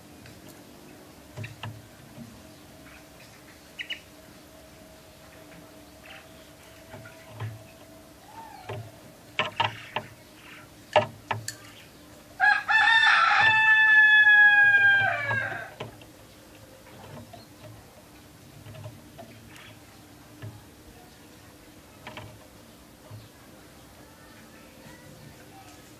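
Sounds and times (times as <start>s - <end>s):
rooster crowing: 12.4s - 15.8s.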